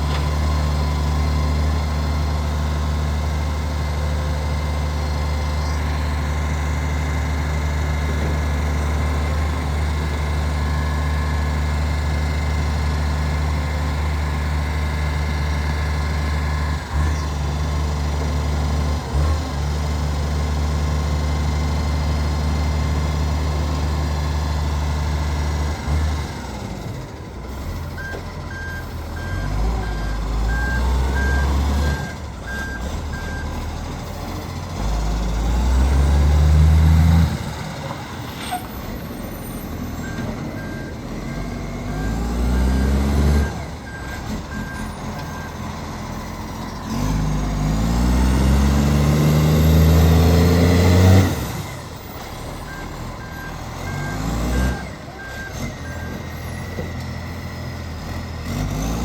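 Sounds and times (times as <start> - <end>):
diesel engine idling: 0.0 - 58.5
reversing beeper beeps: 28.0 - 33.6, 39.5 - 45.7, 52.6 - 57.0.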